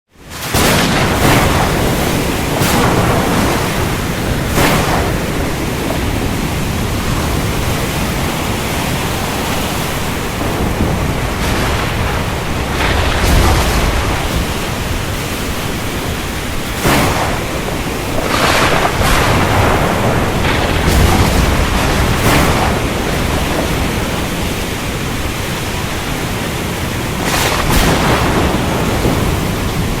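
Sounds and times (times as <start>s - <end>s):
heavy rain hissing: 0.2s - 30.0s.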